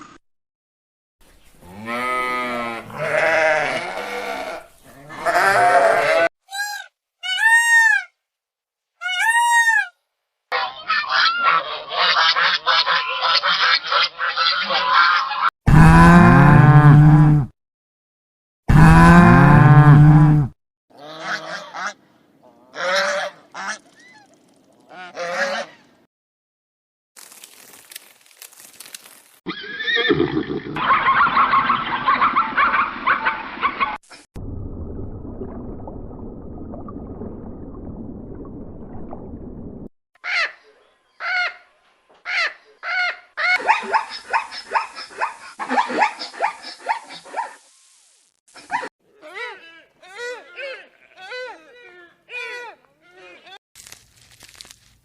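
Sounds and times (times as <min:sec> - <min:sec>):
sheep bleating: 0:01.6 - 0:06.3, 0:50.2 - 0:51.4
high-pitched animal calls: 0:22.7 - 0:25.9.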